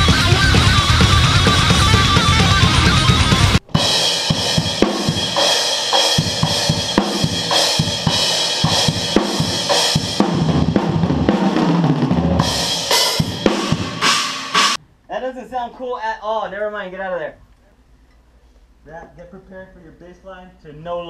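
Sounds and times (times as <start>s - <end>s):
drum kit playing: 0.0s - 14.8s
dense band mix: 0.0s - 17.4s.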